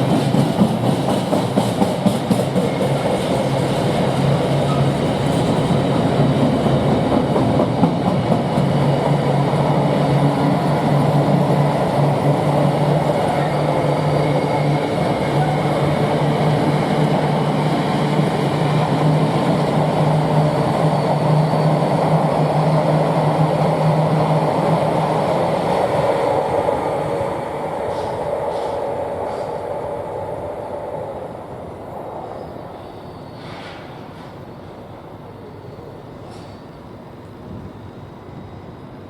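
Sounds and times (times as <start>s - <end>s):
train wagons rumbling on rails: 0.0s - 29.8s.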